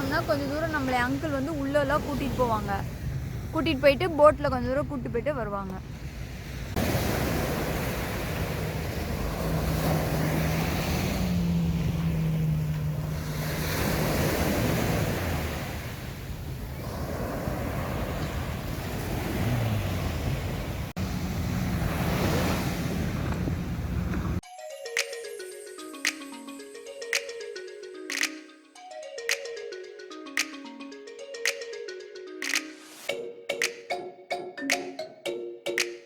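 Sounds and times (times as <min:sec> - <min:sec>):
surf breaking on a beach: 0:06.8 - 0:23.6.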